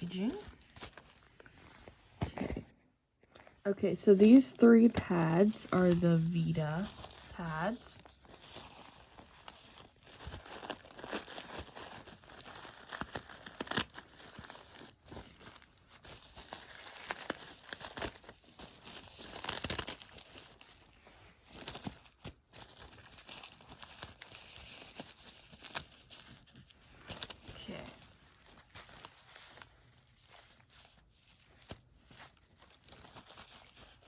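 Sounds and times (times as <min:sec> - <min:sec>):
plastic wrapping crinkling and tearing: 0:00.0 - 0:01.9, 0:04.2 - 0:34.0.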